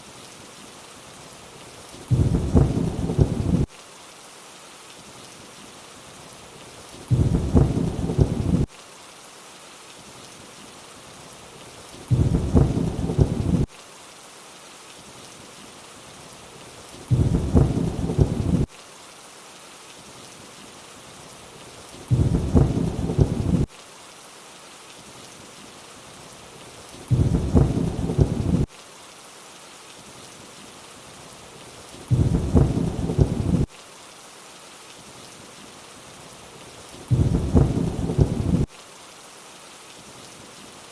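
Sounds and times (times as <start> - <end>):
steady rain: 0.0 - 40.9
low rumble of thunder: 2.1 - 3.7, 7.1 - 8.7, 12.1 - 13.7, 17.1 - 18.7, 22.1 - 23.7, 27.1 - 28.7, 32.1 - 33.7, 37.1 - 38.7.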